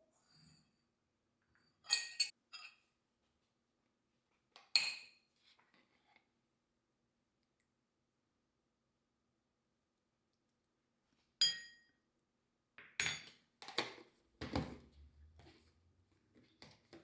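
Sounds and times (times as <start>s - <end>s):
dishes clinking and clattering: 1.8s - 2.9s.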